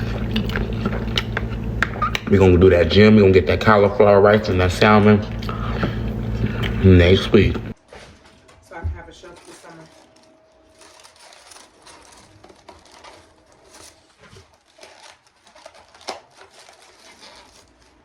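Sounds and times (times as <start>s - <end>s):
food packaging rustling and clicking: 0.0s - 2.5s, 7.6s - 18.0s.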